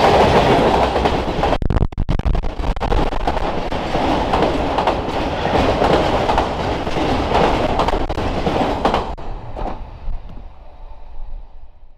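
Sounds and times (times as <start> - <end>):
freight train wheels clacking: 0.0 - 1.5, 3.2 - 10.4.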